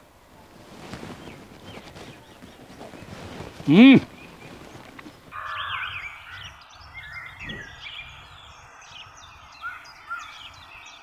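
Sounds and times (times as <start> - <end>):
small birds chirping: 0.2 - 11.0.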